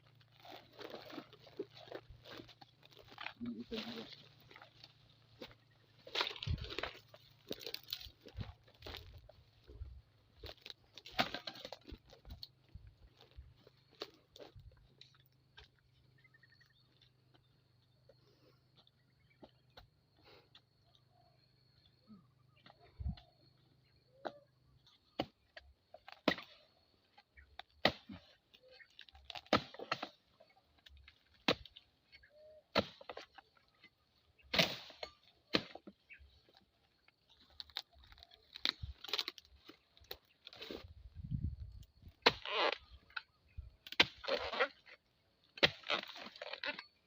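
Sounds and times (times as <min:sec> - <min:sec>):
blade chopping palm fronds: 0:10.4 - 0:12.4, 0:26.0 - 0:26.6, 0:27.7 - 0:28.3, 0:28.9 - 0:30.2, 0:30.9 - 0:31.8, 0:32.7 - 0:33.4, 0:34.4 - 0:35.9, 0:37.6 - 0:40.8, 0:42.2 - 0:42.8, 0:43.8 - 0:44.9, 0:45.5 - 0:46.9.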